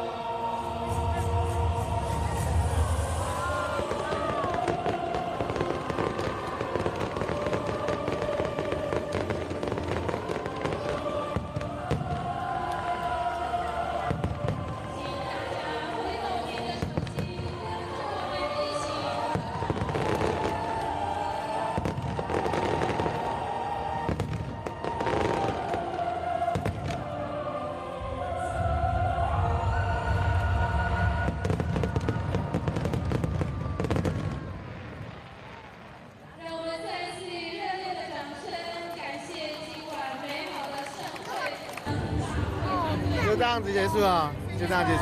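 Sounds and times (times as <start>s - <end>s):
fireworks crackling and popping: 1.0s - 27.2s, 30.1s - 45.0s.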